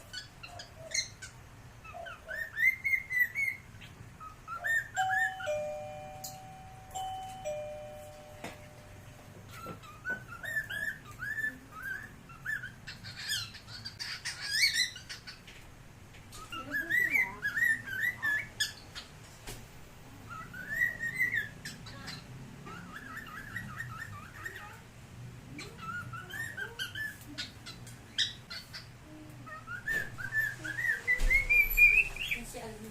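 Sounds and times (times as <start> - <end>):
cockatiel whistling: 20.3 - 21.6, 29.5 - 32.4.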